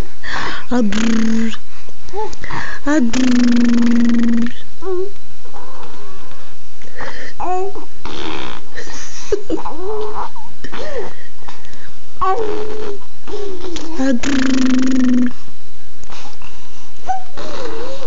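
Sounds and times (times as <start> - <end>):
raspy wheezy breaths: 0.2 - 0.7, 1.6 - 2.8, 6.4 - 7.4.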